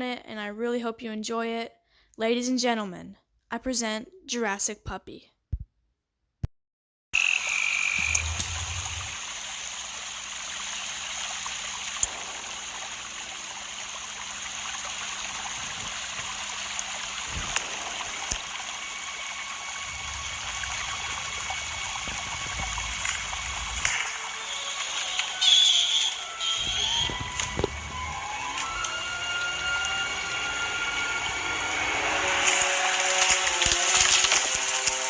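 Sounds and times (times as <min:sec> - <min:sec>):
frogs calling: 0:07.2 - 0:09.5
running water: 0:07.2 - 0:35.0.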